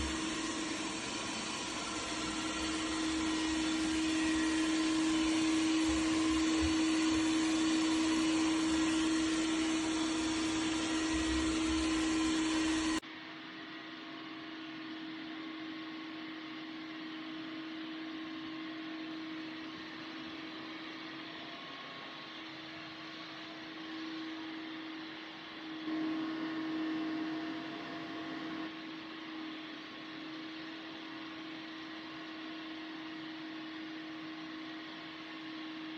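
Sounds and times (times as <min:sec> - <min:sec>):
robot vacuum cleaner whirring: 0:00.0 - 0:13.0, 0:25.8 - 0:32.5.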